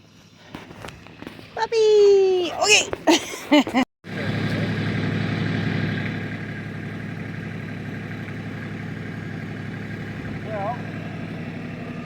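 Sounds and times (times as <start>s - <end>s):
engine idling: 4.1s - 12.0s.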